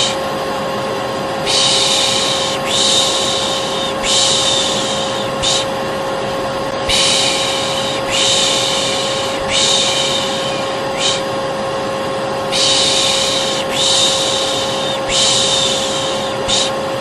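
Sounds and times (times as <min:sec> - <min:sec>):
hair dryer humming: 0:00.0 - 0:17.0
person shushing: 0:01.4 - 0:05.8, 0:06.9 - 0:11.3, 0:12.5 - 0:16.9.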